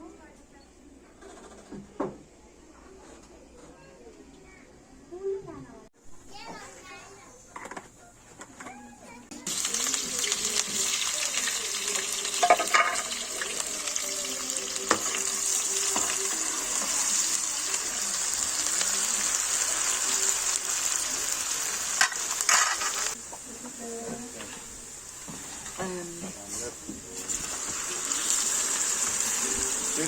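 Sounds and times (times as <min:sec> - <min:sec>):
food sizzling in hot oil: 0:09.4 - 0:30.0.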